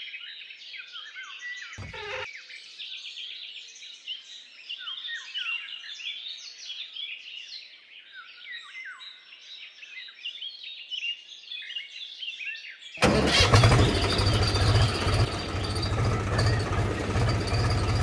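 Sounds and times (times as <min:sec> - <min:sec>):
small birds chirping: 0:00.6 - 0:12.9, 0:13.6 - 0:18.0
loud mechanical running noise: 0:13.0 - 0:18.0.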